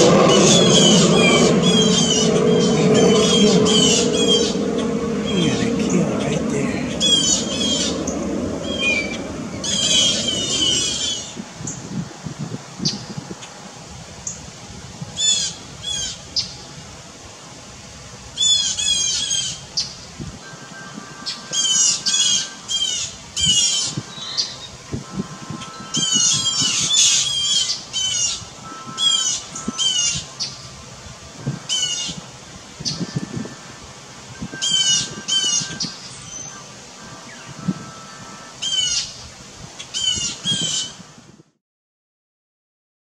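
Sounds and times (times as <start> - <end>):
birds squawking harshly: 0.0 - 11.4, 34.6 - 36.6, 38.6 - 39.2, 39.8 - 41.0.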